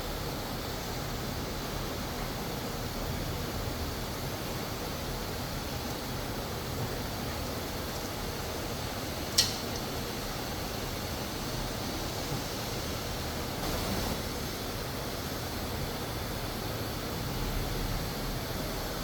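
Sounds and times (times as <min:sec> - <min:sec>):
factory machinery humming: 0:10.9 - 0:15.2.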